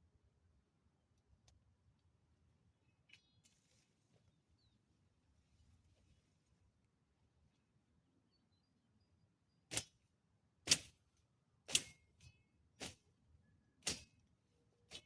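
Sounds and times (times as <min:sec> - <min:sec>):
garden hand tool swishing: 0:09.7 - 0:09.9, 0:10.7 - 0:11.0, 0:11.7 - 0:12.0, 0:12.8 - 0:13.0, 0:13.8 - 0:14.1.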